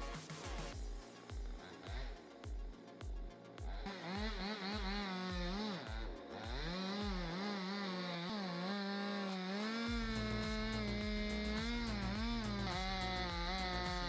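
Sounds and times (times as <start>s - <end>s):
chainsaw cutting wood: 3.8s - 14.0s
low rumble: 9.9s - 14.0s.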